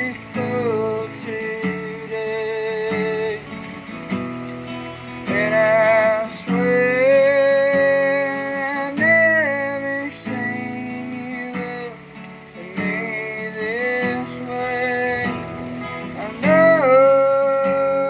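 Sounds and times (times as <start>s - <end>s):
person singing: 0.0s - 3.8s, 5.2s - 18.0s
acoustic guitar strumming: 0.0s - 18.0s.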